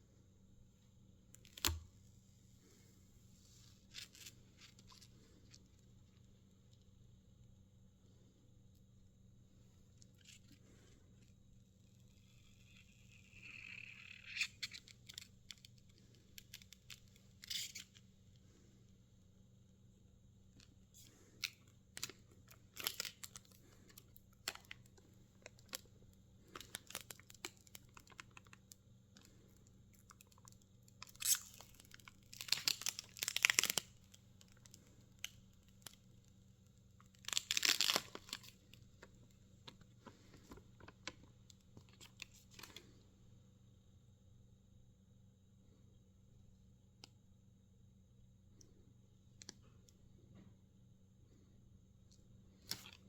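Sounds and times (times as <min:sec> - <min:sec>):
plastic and paper crinkling: 0:30.1 - 0:36.0, 0:37.2 - 0:42.8.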